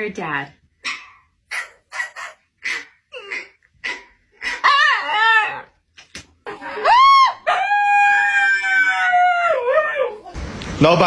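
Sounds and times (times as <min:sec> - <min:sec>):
dog howling and yowling: 0:04.4 - 0:05.8, 0:06.6 - 0:10.4.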